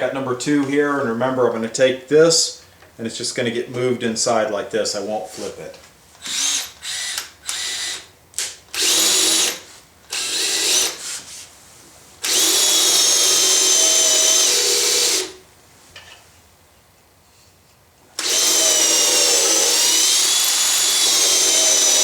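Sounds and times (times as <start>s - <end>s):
power drill whining: 6.2s - 11.1s, 12.2s - 15.4s, 18.2s - 22.0s.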